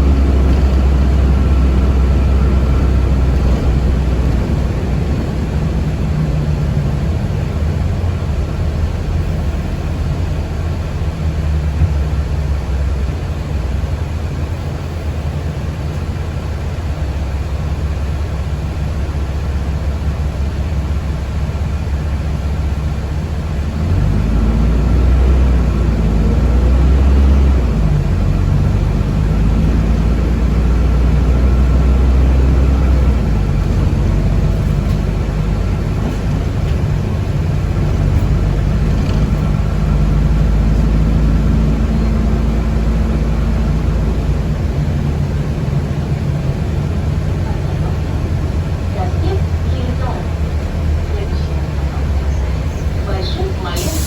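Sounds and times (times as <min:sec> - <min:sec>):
vehicle cabin low rumble: 0:00.0 - 0:54.0.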